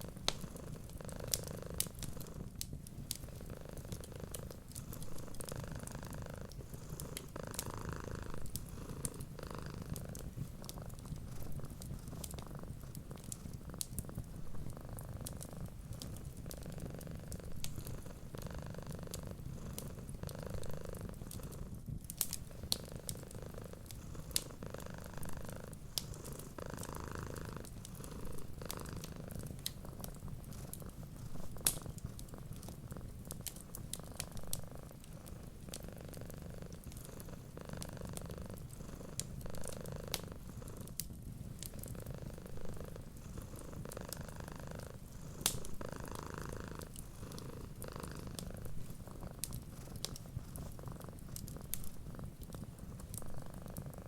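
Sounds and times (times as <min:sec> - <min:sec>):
cat purring: 0:00.0 - 0:54.0
wood fire crackling: 0:00.0 - 0:54.0.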